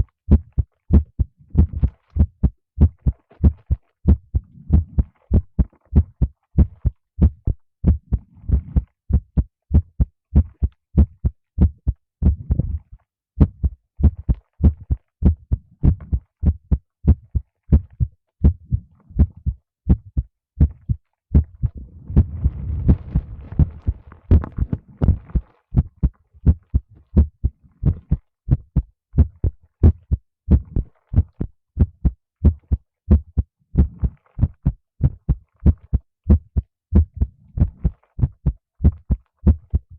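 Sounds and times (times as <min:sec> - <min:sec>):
heartbeat double thumps: 0:00.0 - 0:39.9
rustling noise: 0:21.6 - 0:25.9.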